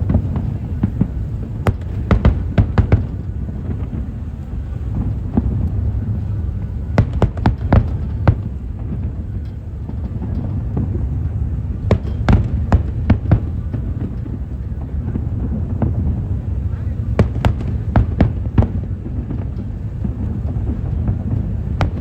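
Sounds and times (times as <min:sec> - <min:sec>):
fireworks bangs: 0:00.0 - 0:22.0
steady low rumble: 0:00.0 - 0:22.0.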